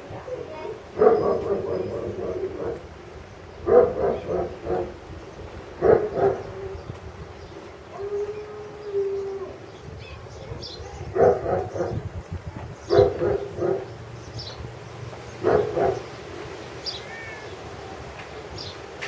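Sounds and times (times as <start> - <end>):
dogs barking: 0.9 - 2.9, 3.6 - 5.1, 5.8 - 6.8, 11.1 - 12.1, 12.9 - 14.1, 15.4 - 16.3.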